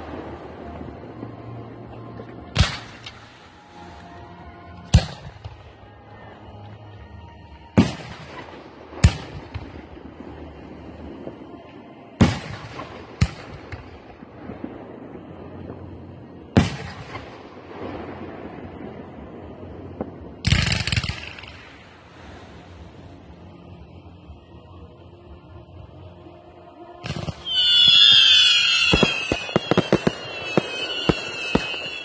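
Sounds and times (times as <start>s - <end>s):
fireworks bangs: 27.0s - 32.0s.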